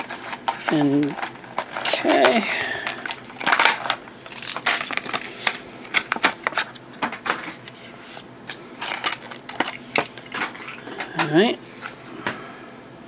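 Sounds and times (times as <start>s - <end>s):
plastic packaging crinkling: 0.0s - 7.6s, 8.5s - 11.3s.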